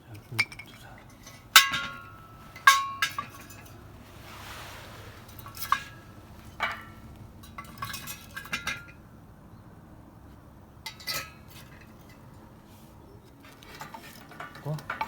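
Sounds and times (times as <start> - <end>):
metal clinking knocks: 0.4 - 4.4
brief soft hiss: 4.0 - 6.4.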